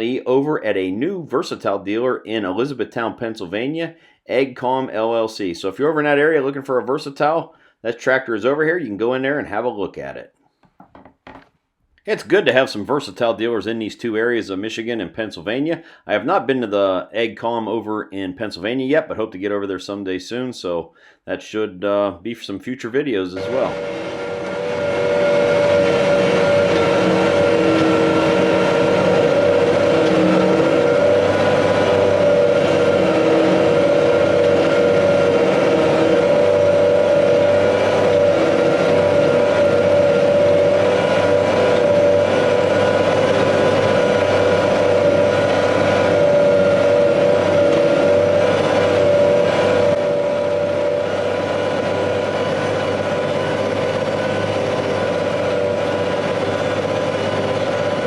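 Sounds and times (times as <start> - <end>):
farm machinery engine droning: 23.4 - 58.0.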